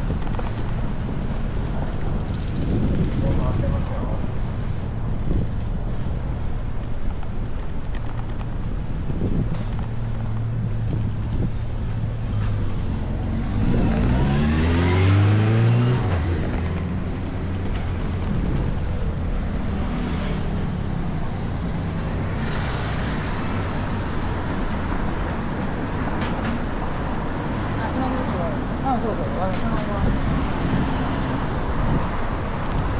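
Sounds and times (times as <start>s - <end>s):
traffic rumble: 0.0s - 32.9s
vehicle accelerating past: 11.8s - 24.6s.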